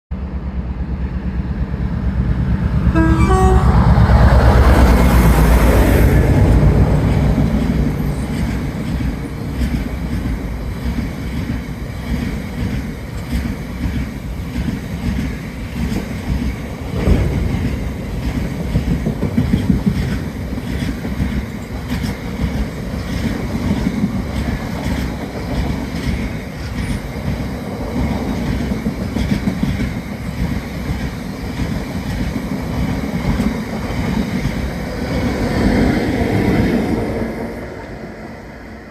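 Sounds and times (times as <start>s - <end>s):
locomotive horn: 2.9s - 5.7s.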